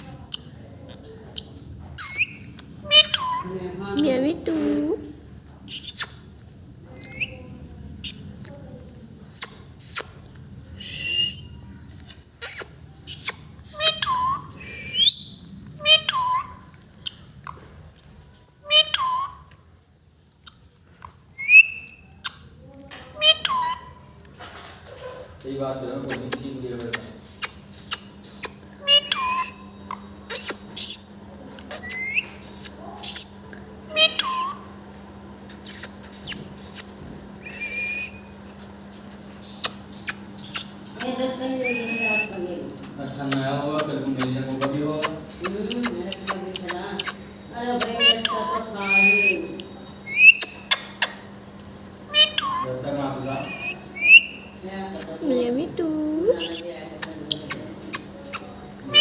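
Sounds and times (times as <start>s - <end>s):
parrot chirps: 0.0s - 0.6s, 1.3s - 4.2s, 5.6s - 6.4s, 7.0s - 8.5s, 9.2s - 11.6s, 12.4s - 19.6s, 20.4s - 24.1s, 26.0s - 34.8s, 35.5s - 42.4s, 43.2s - 55.2s, 56.3s - 59.0s
parrot whistling calls: 1.4s - 4.1s, 5.7s - 6.3s, 7.0s - 7.4s, 10.8s - 11.6s, 12.4s - 17.3s, 18.0s - 19.5s, 21.4s - 22.6s, 23.2s - 24.0s, 26.1s - 34.8s, 35.6s - 42.4s, 43.2s - 55.2s, 56.3s - 59.0s.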